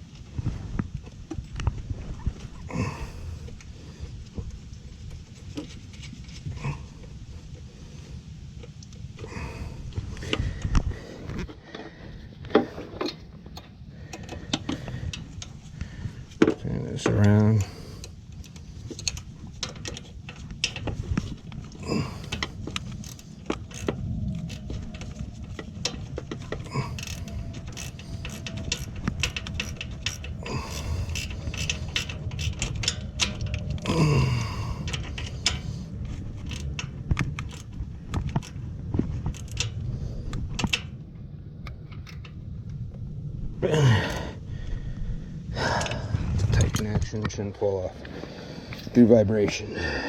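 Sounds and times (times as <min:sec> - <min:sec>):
metal tools clinking: 0:21.8 - 0:35.7.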